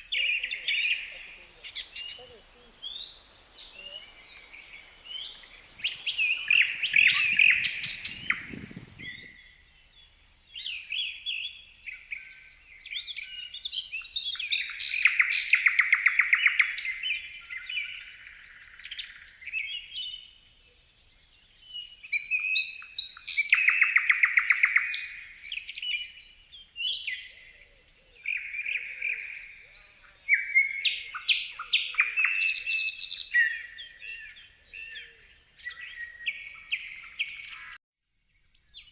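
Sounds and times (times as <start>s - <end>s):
songbirds chirping and singing: 0.0s - 37.8s
loud rapid bird trills: 0.2s - 9.4s.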